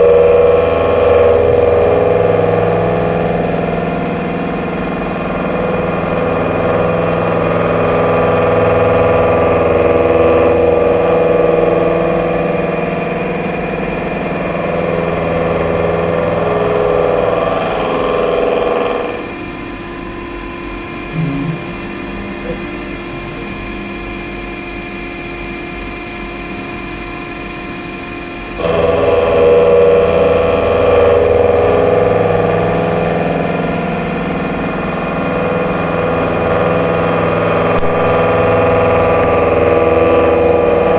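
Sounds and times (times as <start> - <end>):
milling cutter grinding steel: 0.0 - 19.5, 28.5 - 40.9
machine hum: 0.0 - 40.9.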